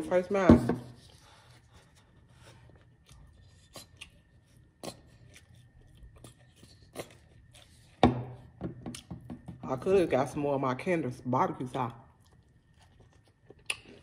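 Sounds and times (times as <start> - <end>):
crunchy chicken chewing: 1.0 - 9.2, 12.0 - 14.0.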